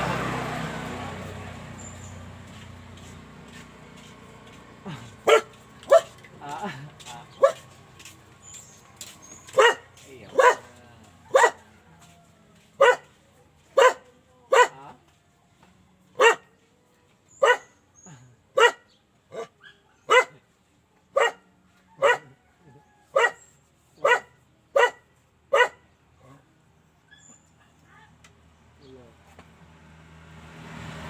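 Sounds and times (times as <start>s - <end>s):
dog barking: 4.9s - 7.7s, 9.2s - 15.0s, 16.2s - 16.6s, 17.3s - 20.4s, 21.1s - 22.5s, 23.1s - 26.4s.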